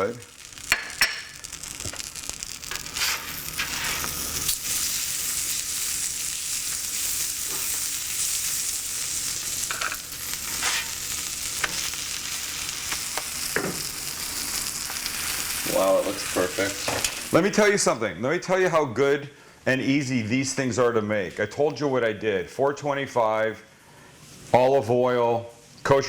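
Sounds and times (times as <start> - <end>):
butter sizzling in a hot pan: 0.0 - 17.6.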